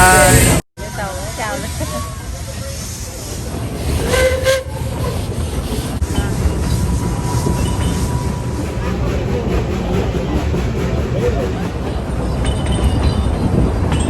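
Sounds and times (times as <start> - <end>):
train running low rumble: 0.0 - 14.0
steam train whistle: 3.8 - 5.2.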